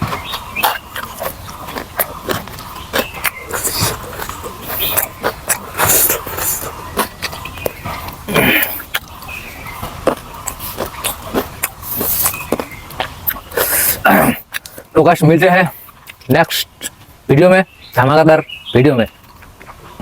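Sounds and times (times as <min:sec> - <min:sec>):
chewing and lip-smacking: 0:00.0 - 0:14.9, 0:15.7 - 0:17.1
slurping breaths: 0:00.2 - 0:14.9.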